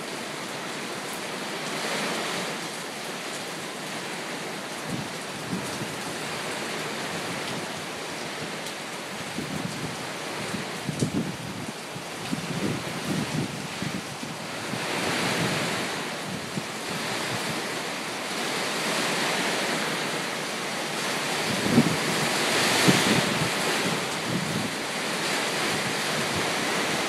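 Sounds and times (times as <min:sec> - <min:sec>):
wind and heavy rain: 0:00.0 - 0:27.0
wind buffeting microphone: 0:09.2 - 0:17.8, 0:21.0 - 0:27.0.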